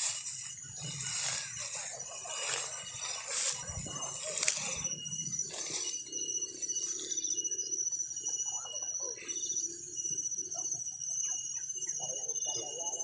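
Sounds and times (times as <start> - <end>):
birds chirping: 0.0 - 7.4
steady high-pitched trill: 0.0 - 12.9.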